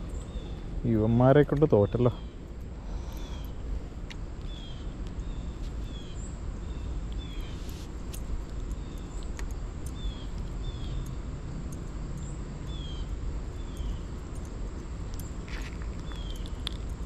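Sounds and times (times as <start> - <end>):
steady low rumble: 0.0 - 17.0
bird chirping: 4.4 - 7.8, 8.7 - 11.3, 12.2 - 16.8
faint clicks: 7.1 - 17.0.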